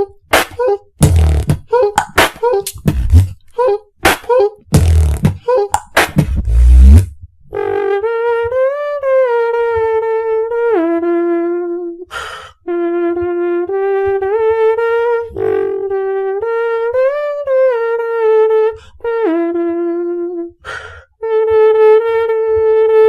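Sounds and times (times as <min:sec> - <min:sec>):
beatboxer humming melody: 0:00.0 - 0:23.0
soft low kick beats: 0:01.0 - 0:03.4, 0:04.8 - 0:07.3
sharp inhale: 0:12.1 - 0:12.6, 0:20.6 - 0:21.2.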